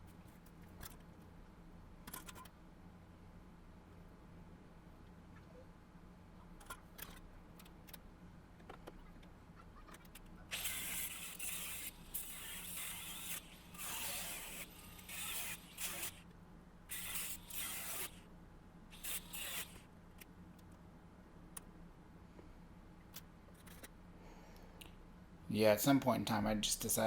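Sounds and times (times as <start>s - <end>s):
power tool grinding sheet metal: 10.5s - 16.2s, 16.9s - 18.2s, 19.0s - 19.8s.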